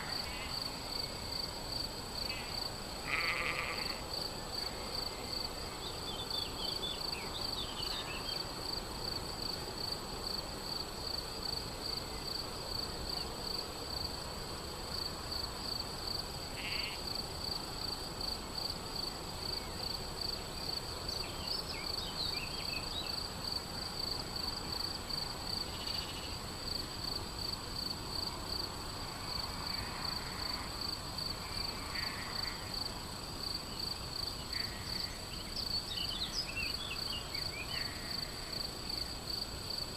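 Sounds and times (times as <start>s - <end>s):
cricket chirping: 0.0s - 39.9s
faint animal calls: 2.2s - 4.0s, 16.6s - 17.0s.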